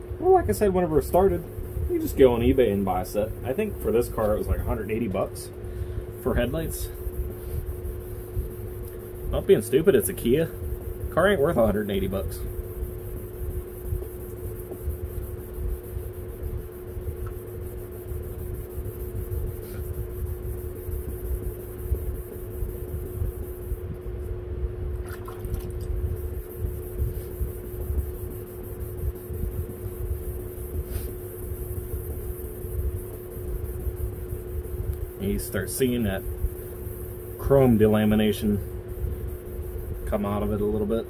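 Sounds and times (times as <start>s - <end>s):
steady hum: 0.0s - 41.0s.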